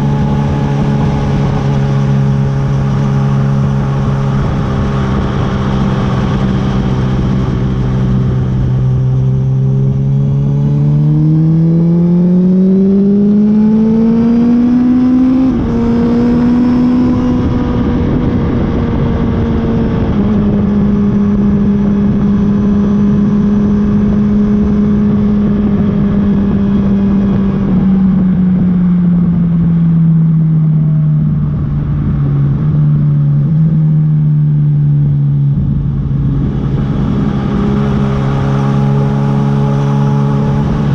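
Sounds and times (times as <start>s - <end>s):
motorcycle engine accelerating: 0.0s - 40.9s
wind and road rush: 0.0s - 40.9s.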